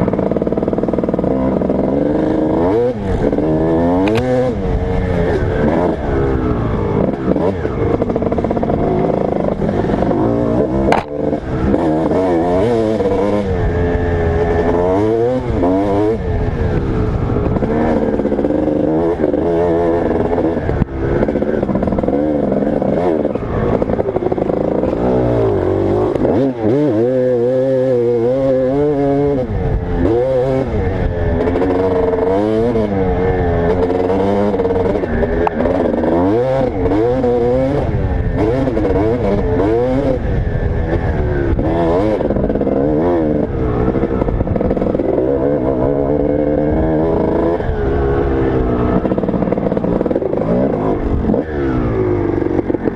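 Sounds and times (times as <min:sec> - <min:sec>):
dirt bike engine revving: 0:00.0 - 0:52.9
sharp click: 0:04.0 - 0:04.3, 0:10.9 - 0:11.2.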